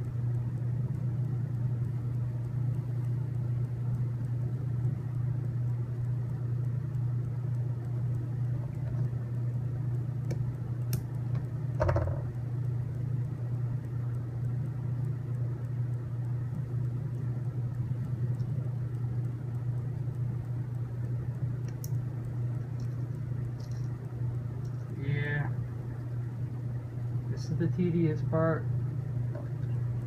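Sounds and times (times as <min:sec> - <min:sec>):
low background hum: 0:00.0 - 0:30.0
knock: 0:11.8 - 0:12.2
light clicks of kit parts: 0:22.6 - 0:24.0.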